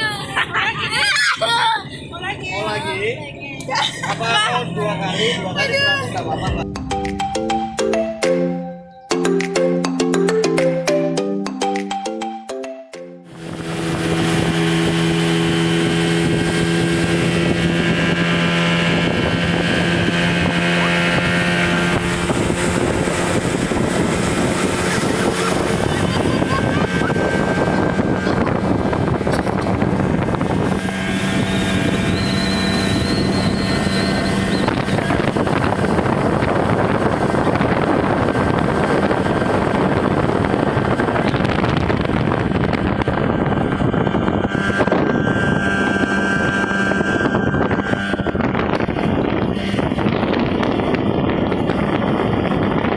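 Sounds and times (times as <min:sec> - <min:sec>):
high whine: 0:00.0 - 0:09.5, 0:13.2 - 0:52.9
speedboat engine running: 0:00.0 - 0:10.6, 0:13.2 - 0:52.9
wind buffeting microphone: 0:13.3 - 0:52.9.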